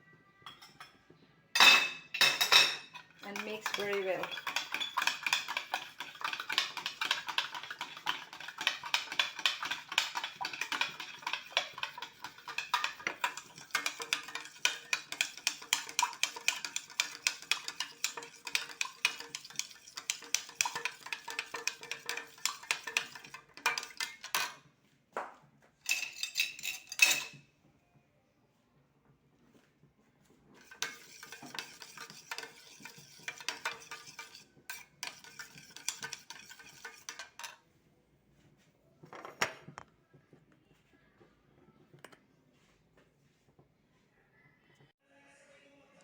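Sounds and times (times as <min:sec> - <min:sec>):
utensil clinking in container: 0:02.2 - 0:24.6.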